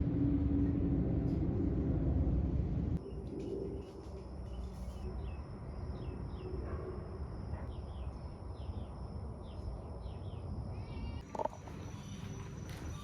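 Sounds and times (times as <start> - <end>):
low background rumble: 0.0 - 3.0.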